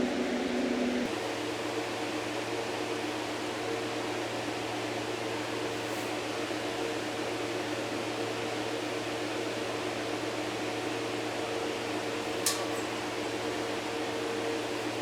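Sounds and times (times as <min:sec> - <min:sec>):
fan motor whirring: 0:00.0 - 0:01.1.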